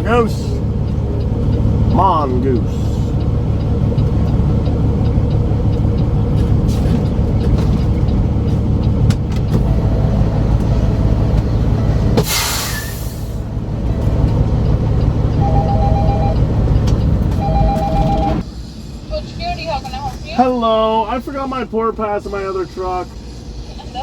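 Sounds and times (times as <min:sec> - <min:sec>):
diesel truck engine idling: 0:00.0 - 0:24.0
air brake hiss: 0:12.2 - 0:13.4
two-tone electronic beep: 0:15.3 - 0:16.5, 0:17.4 - 0:18.4.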